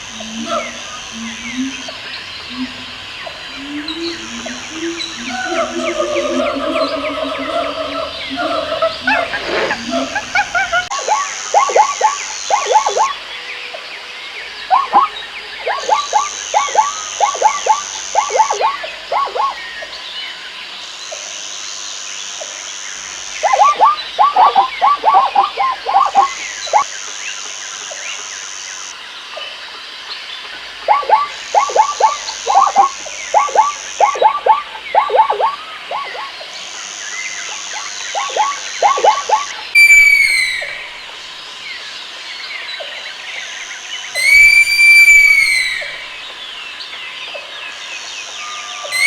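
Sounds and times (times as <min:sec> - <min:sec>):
loud rising and falling animal calls: 0:00.0 - 0:13.1, 0:38.0 - 0:41.2, 0:44.2 - 0:46.2
high buzz: 0:00.0 - 0:13.3, 0:14.7 - 0:19.6, 0:30.9 - 0:41.4
rapid falling croaks: 0:00.0 - 0:13.3, 0:14.6 - 0:19.9, 0:23.0 - 0:26.9, 0:30.5 - 0:41.6.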